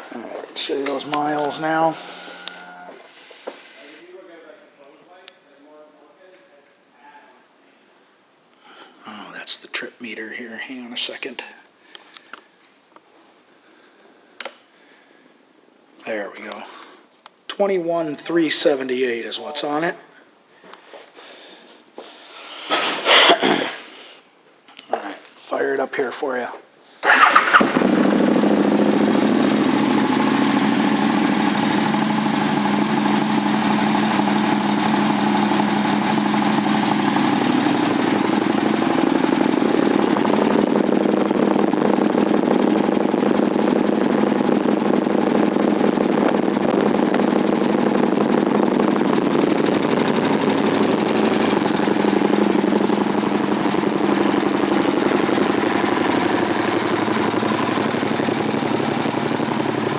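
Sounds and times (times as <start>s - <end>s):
motorcycle engine idling: 0.1s - 3.9s, 27.0s - 59.9s.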